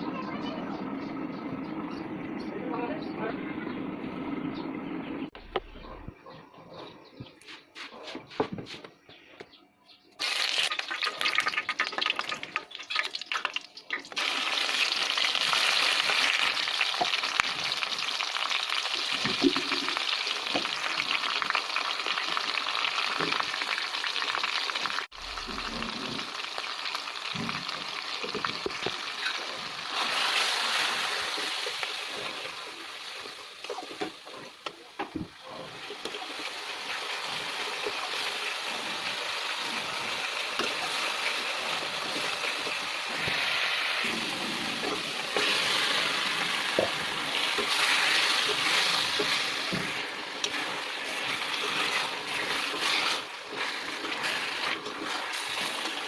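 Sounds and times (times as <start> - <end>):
food sizzling in hot oil: 10.2 - 56.0
stirring in a pot: 27.6 - 56.0.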